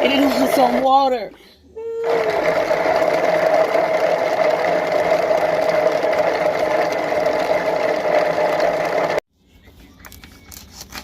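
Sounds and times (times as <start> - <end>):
kitchen blender motor whirring: 2.0 - 9.2.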